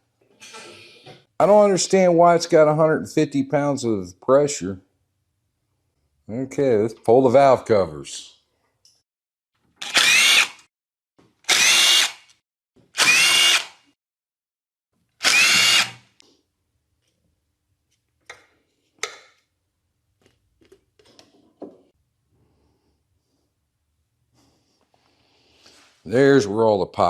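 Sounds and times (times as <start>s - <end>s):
cordless power driver whining: 9.8s - 10.6s, 11.5s - 12.3s, 13.0s - 13.8s, 15.2s - 16.1s.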